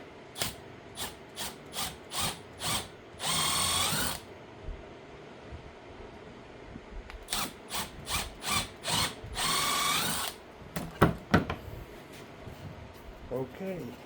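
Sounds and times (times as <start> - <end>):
power drill whirring: 0.4 - 4.3, 7.2 - 10.4.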